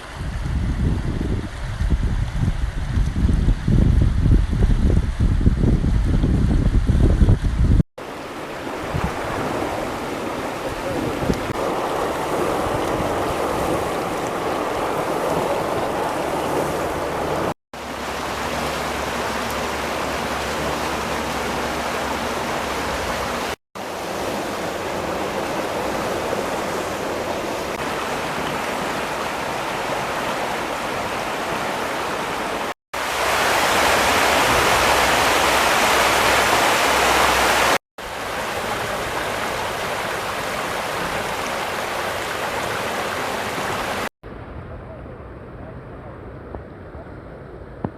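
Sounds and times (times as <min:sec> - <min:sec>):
floodwater rushing: 0:08.0 - 0:44.1.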